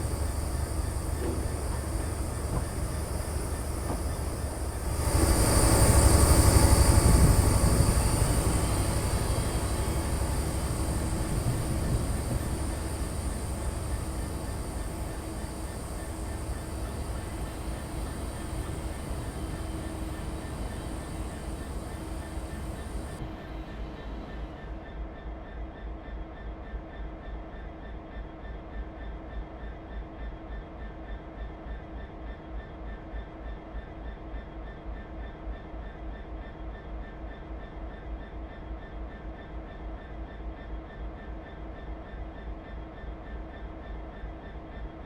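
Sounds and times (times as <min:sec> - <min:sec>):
high-pitched train noise: 0:00.0 - 0:24.8
train rumbling on rails: 0:00.0 - 0:24.8.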